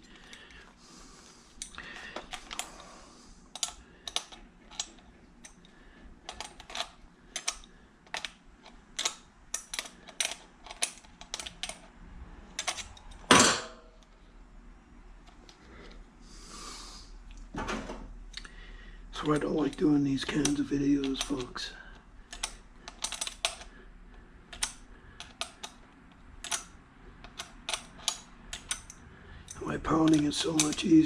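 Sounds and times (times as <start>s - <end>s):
screwdriver and small screws clicking: 3.5s - 5.6s, 6.3s - 11.9s, 12.6s - 13.2s, 19.2s - 21.6s, 22.3s - 23.7s, 24.5s - 31.0s.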